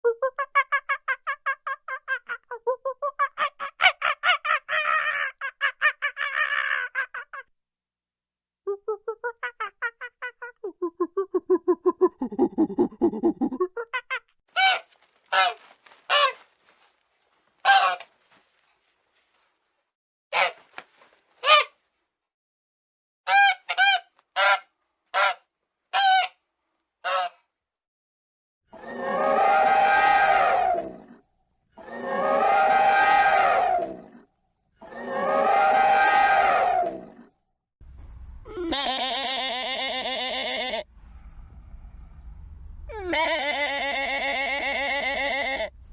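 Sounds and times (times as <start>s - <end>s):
goose honking: 14.6s - 16.4s, 17.6s - 18.1s.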